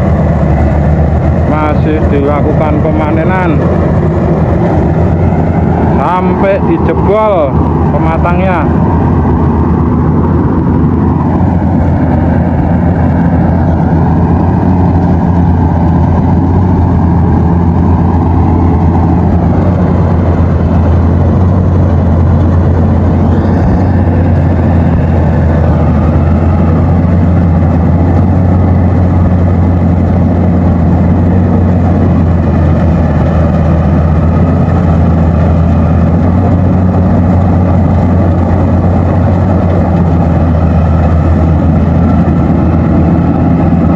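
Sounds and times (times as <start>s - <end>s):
combine harvester engine humming: 0.0s - 43.9s.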